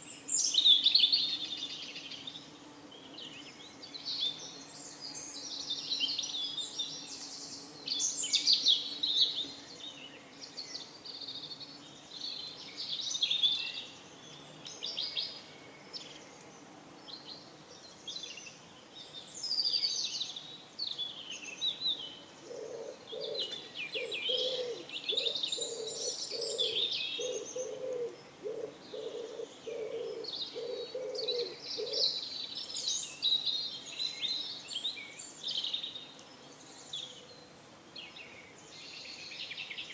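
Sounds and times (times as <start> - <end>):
small birds chirping: 0.0 - 39.9
pigeon cooing: 22.5 - 32.0.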